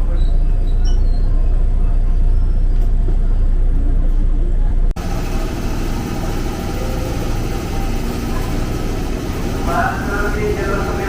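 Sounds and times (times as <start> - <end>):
low engine rumble: 0.0 - 11.0
hissy engine noise: 5.0 - 11.0.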